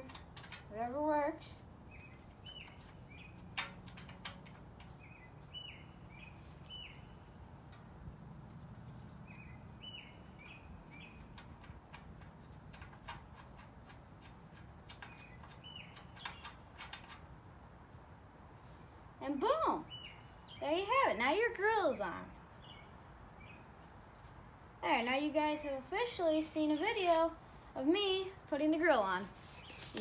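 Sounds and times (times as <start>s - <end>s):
bird chirping: 1.8s - 7.5s, 9.2s - 12.0s, 13.3s - 17.3s, 19.3s - 24.0s.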